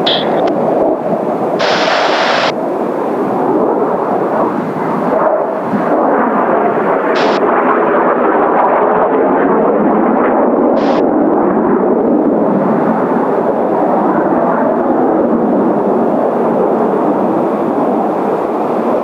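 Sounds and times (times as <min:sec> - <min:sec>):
jet engines roaring: 0:00.0 - 0:19.0
wind buffeting microphone: 0:00.0 - 0:19.0
hissing bursts: 0:01.6 - 0:02.6, 0:07.2 - 0:07.4, 0:10.8 - 0:11.0.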